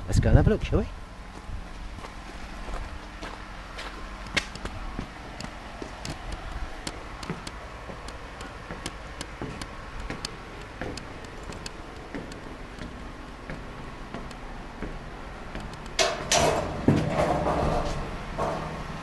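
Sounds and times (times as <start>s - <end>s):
light clicks and knocks: 4.2s - 18.9s.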